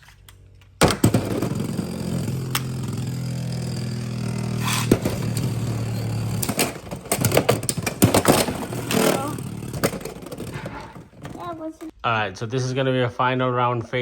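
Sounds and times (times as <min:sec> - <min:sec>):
spinning tops whirring: 0:00.8 - 0:11.6.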